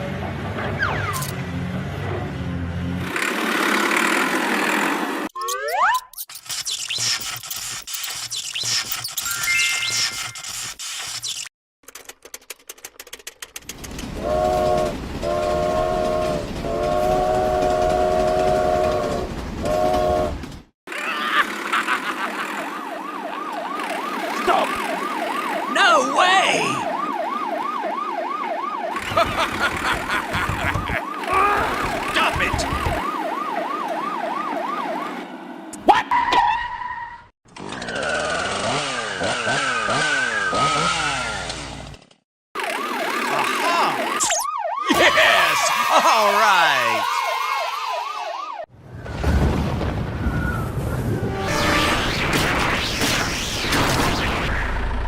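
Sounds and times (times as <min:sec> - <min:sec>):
passing train rumble: 0:13.8 - 0:20.6
train horn blasts: 0:14.2 - 0:20.4, 0:51.2 - 0:51.8
siren wailing fast: 0:22.5 - 0:29.2, 0:42.6 - 0:48.7, 0:50.3 - 0:53.7
siren-like high tone with glides: 0:42.6 - 0:45.9, 0:46.9 - 0:48.7, 0:50.4 - 0:53.0.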